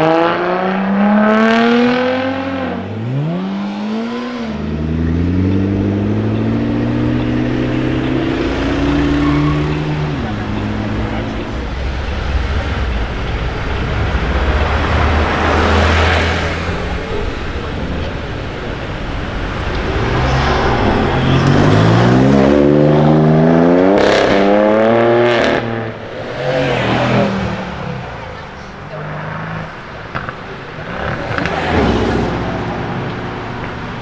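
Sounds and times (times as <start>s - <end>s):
car engine accelerating: 0.0s - 34.0s
gear changes: 1.8s - 34.0s.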